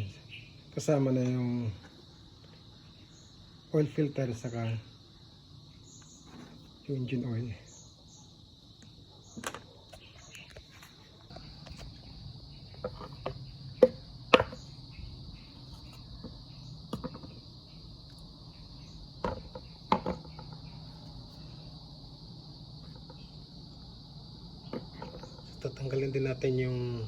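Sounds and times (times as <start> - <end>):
crickets chirring: 0.0 - 27.0
sharp clicks and knocks: 19.2 - 20.6.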